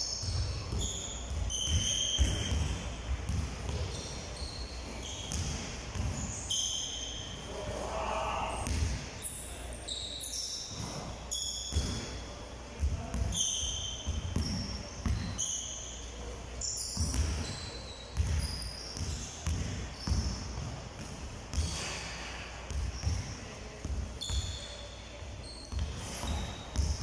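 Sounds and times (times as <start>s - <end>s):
sneaker squeaks: 0.0s - 20.7s, 21.5s - 27.0s
basketballs bouncing on wooden floor: 0.2s - 4.0s, 5.0s - 6.3s, 17.0s - 17.5s, 18.2s - 21.9s.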